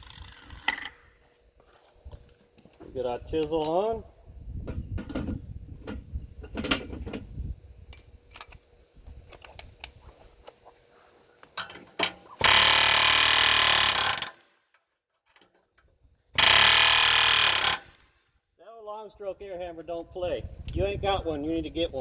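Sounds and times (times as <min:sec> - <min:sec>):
pneumatic air hammer running: 0:00.0 - 0:01.1, 0:12.1 - 0:14.4, 0:16.4 - 0:18.1.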